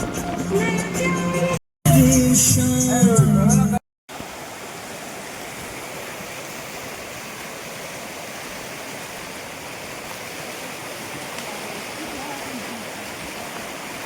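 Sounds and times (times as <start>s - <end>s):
water hissing: 4.1s - 14.0s.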